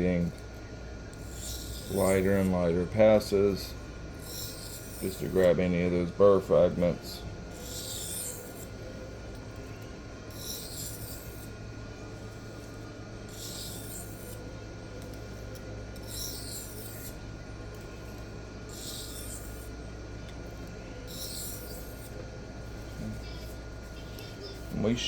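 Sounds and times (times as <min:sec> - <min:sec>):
knife scraping on sharpening plate: 0:01.2 - 0:02.3, 0:04.2 - 0:05.4, 0:07.6 - 0:08.7, 0:10.3 - 0:11.5, 0:13.3 - 0:14.4, 0:16.0 - 0:17.2, 0:18.7 - 0:19.7, 0:21.1 - 0:22.2.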